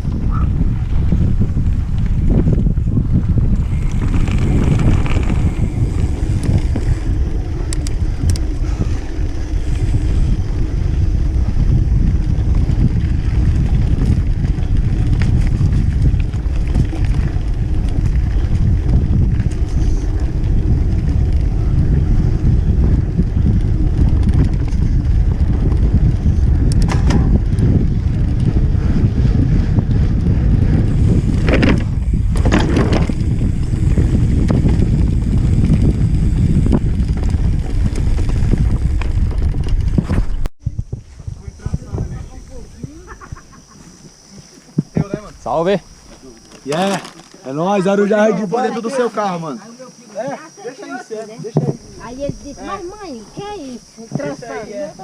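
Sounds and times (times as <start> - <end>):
wind rumbling on microphone: 0.0 - 49.1, 51.3 - 55.0
bike knocks and rattles: 0.1 - 41.0, 51.4 - 52.5.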